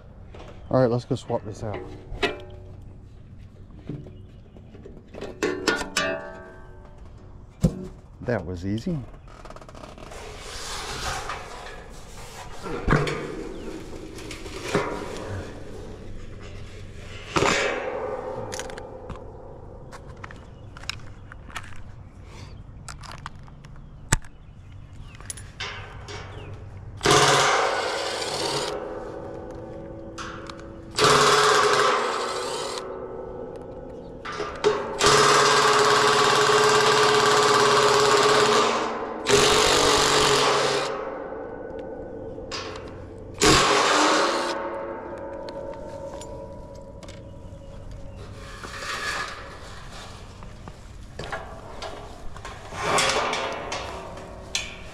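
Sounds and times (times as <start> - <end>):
rasping grinding noise: 9.4 - 17.4, 45.8 - 50.5.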